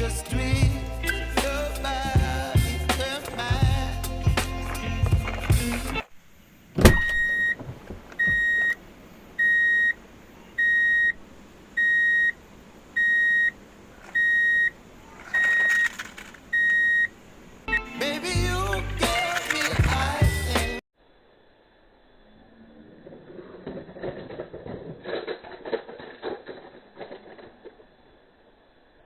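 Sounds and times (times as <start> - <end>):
music: 0.0 - 6.1, 17.7 - 20.8
electronic beeper beeps: 6.9 - 7.6, 8.2 - 8.8, 9.4 - 10.0, 10.6 - 11.2, 11.8 - 12.4, 13.0 - 13.6, 14.2 - 14.8, 15.4 - 16.0, 16.6 - 17.1.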